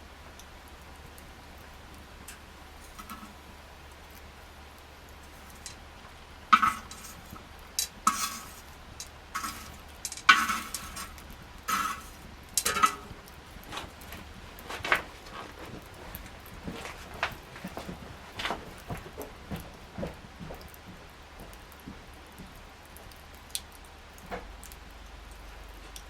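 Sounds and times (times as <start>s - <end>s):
campfire snapping and popping: 0.1s - 26.0s.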